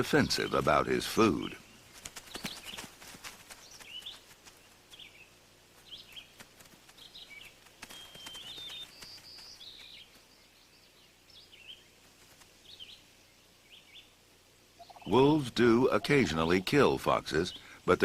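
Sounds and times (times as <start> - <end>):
high-pitched animal chirps: 14.8 - 15.2.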